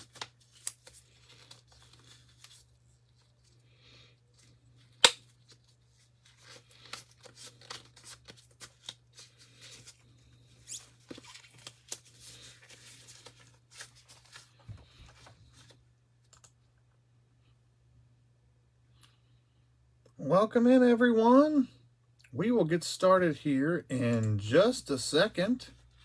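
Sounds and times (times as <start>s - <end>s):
packaging rustling and tearing: 0.0s - 3.6s, 5.2s - 15.8s.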